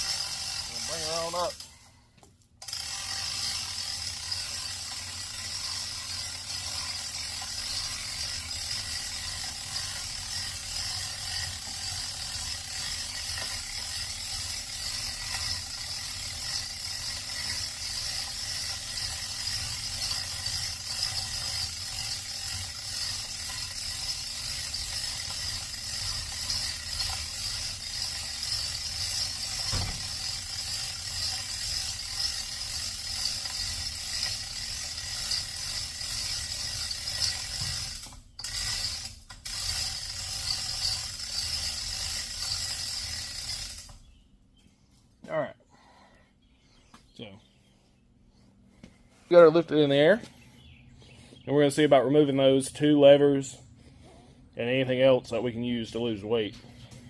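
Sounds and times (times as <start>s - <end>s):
chain hoist ratcheting: 0.0s - 1.8s, 2.6s - 44.1s.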